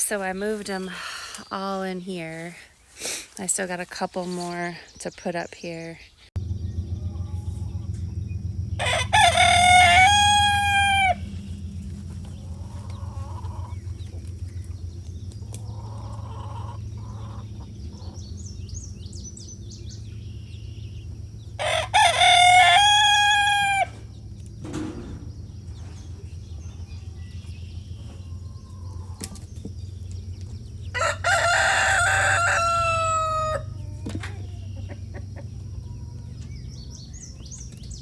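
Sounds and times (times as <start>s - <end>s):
steady low rumble: 6.3s - 31.2s
rooster crowing: 8.7s - 11.5s, 21.6s - 24.1s, 30.9s - 34.0s.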